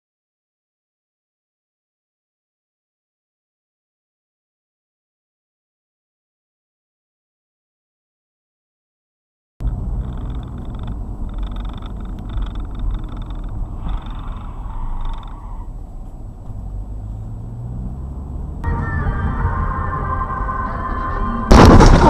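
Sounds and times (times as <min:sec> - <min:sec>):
car engine rumble: 0:09.6 - 0:22.0
road noise: 0:09.6 - 0:22.0.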